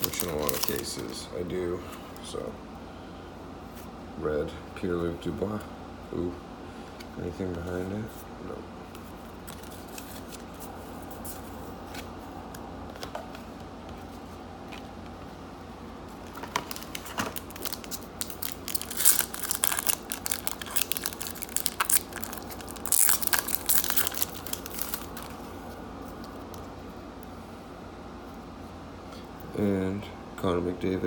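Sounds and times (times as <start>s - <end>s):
foil wrapper crinkling and tearing: 0.0s - 1.2s, 16.2s - 25.4s
steady low hum: 0.0s - 31.0s.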